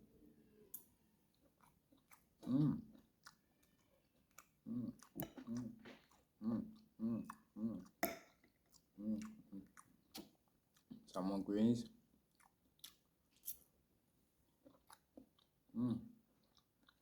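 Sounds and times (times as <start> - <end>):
man chewing food: 0.8 - 11.2, 11.8 - 17.0
wet mouth clicks: 1.4 - 11.1.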